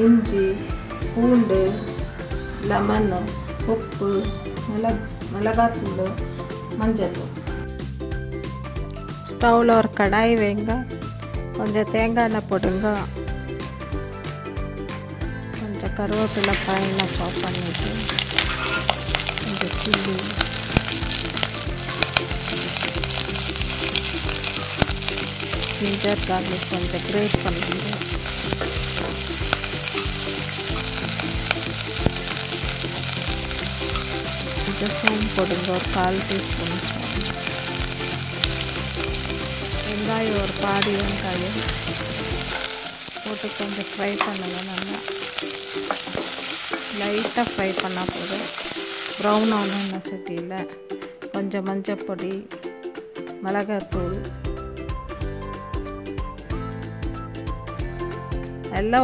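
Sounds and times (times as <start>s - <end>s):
vegetables sizzling in hot oil: 16.1s - 50.0s
spatula tapping and scraping: 43.9s - 47.9s.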